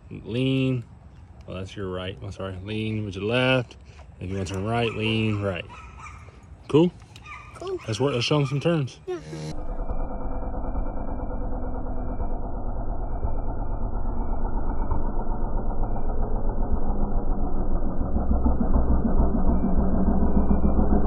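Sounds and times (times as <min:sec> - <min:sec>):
dirt bike engine running: 0:09.2 - 0:21.0.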